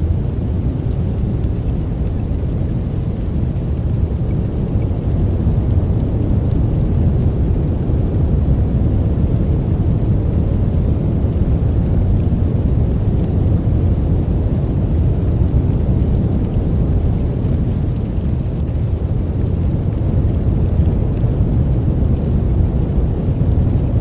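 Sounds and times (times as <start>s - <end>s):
deep white noise: 0.0s - 24.0s.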